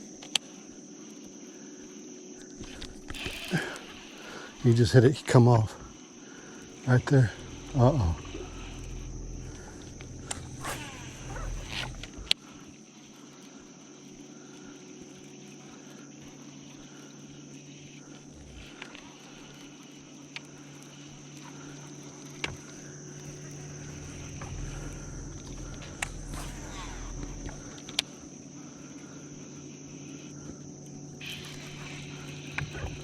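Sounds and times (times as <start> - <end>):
insects droning: 0.0 - 33.0
low steady hum: 4.1 - 12.6, 21.2 - 33.0.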